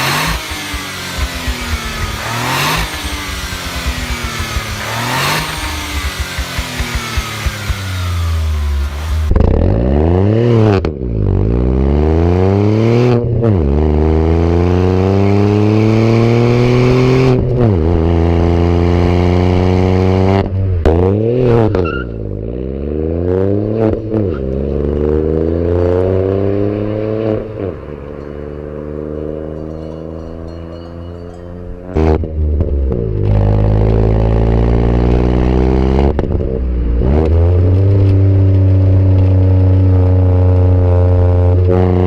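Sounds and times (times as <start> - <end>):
car engine accelerating: 0.0 - 42.0.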